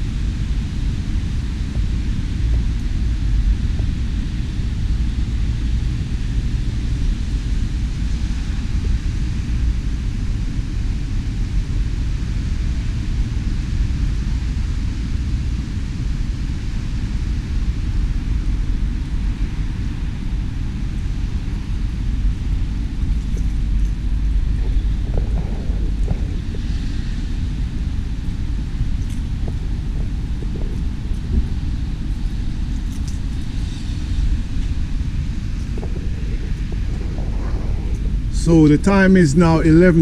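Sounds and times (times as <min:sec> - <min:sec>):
wind buffeting microphone: 0:00.0 - 0:40.0
rain hissing: 0:22.3 - 0:40.0.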